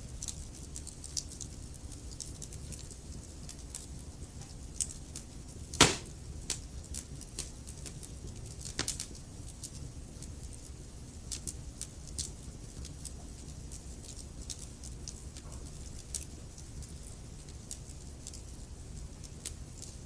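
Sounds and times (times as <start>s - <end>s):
wood fire crackling: 0.1s - 20.0s
loud log pop: 5.8s - 6.2s.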